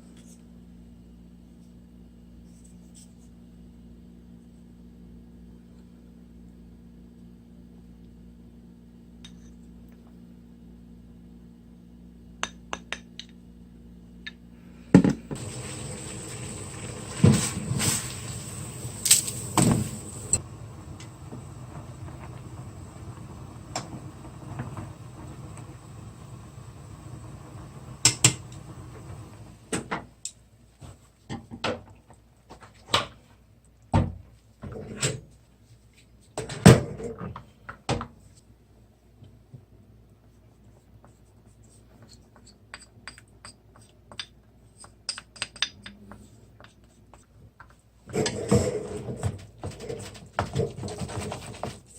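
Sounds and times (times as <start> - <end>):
steady rushing noise: 15.5 - 29.7.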